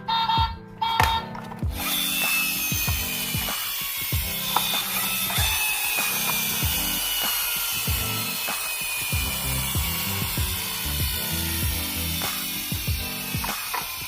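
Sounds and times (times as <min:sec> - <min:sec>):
toy electronic tune: 0:00.0 - 0:14.0
plastic clicking of toy mechanism: 0:13.4 - 0:14.0.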